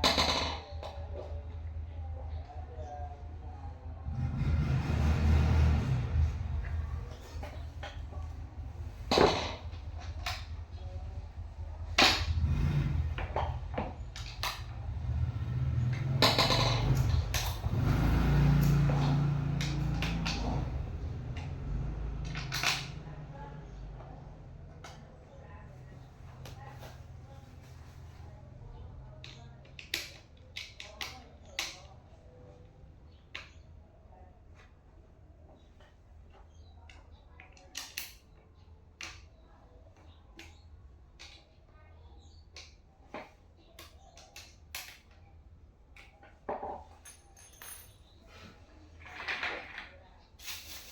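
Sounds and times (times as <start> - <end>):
chair parts knocking and clicking: 0.0 - 1.3, 6.6 - 10.8, 13.1 - 23.0, 46.0 - 48.0.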